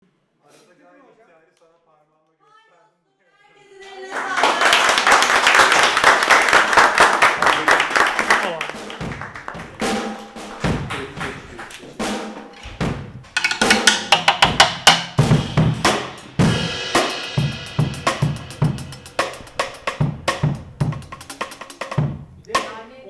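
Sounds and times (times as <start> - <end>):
bass drum and snare beat: 6.9 - 23.0
cymbal wash: 12.0 - 22.9.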